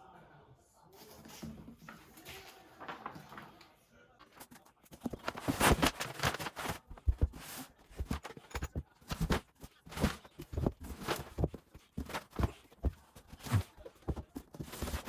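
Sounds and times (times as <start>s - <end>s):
kitten paws thumping and scratching: 4.3s - 15.0s.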